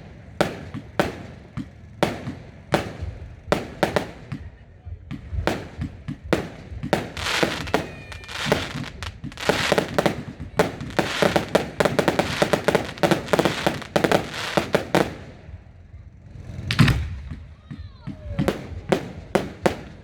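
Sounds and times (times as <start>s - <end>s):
fireworks bangs and crackles: 0.0s - 20.0s
firework whistle: 6.9s - 15.2s.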